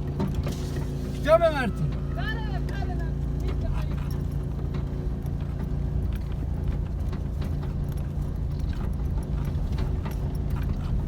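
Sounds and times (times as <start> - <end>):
vehicle engine running: 0.0 - 11.0
light rattling and clicking: 2.7 - 11.0.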